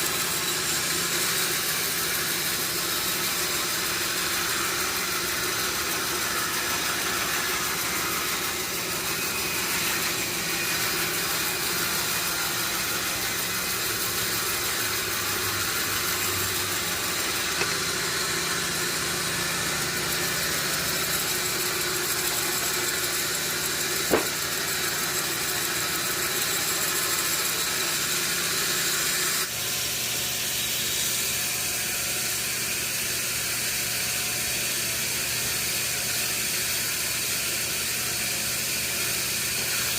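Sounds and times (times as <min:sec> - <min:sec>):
motor hum: 0:00.0 - 0:26.7
sharp knock: 0:24.1 - 0:24.4.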